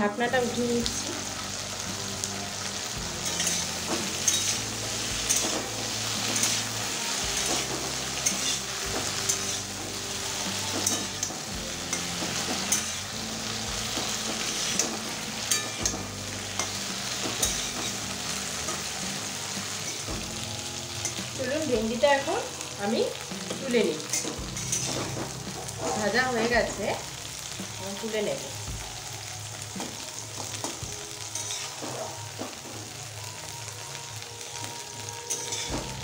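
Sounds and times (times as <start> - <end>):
okra sizzling in oil: 0.0 - 36.0
metal spatula scraping a pan: 2.6 - 21.4, 23.1 - 26.8, 29.9 - 32.6, 35.1 - 36.0.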